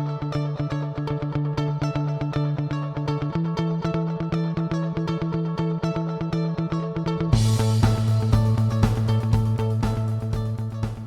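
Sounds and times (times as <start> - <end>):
plucked notes over low drone: 7.2 - 11.0.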